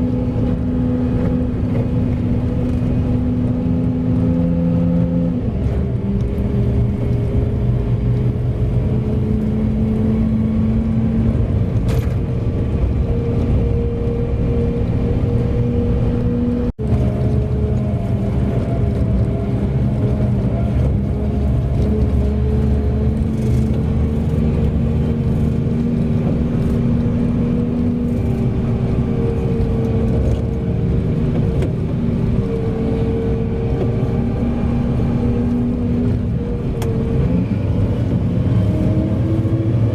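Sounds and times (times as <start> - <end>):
diesel truck engine under load: 0.0 - 39.9.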